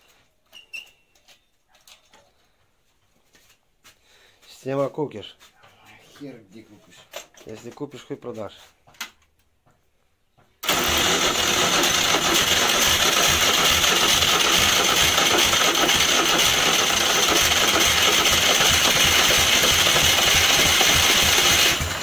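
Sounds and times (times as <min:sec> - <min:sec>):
tractor engine running: 0:10.6 - 0:22.0.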